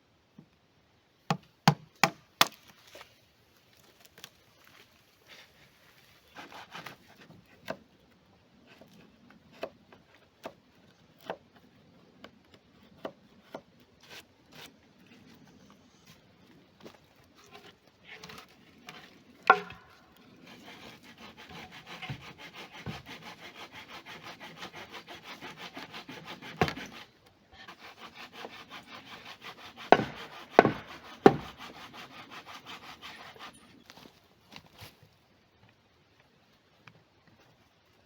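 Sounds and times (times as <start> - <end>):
hand saw cutting wood: 6.3 - 7.8, 17.4 - 33.8
wood knocks: 19.5 - 19.9, 29.9 - 31.5.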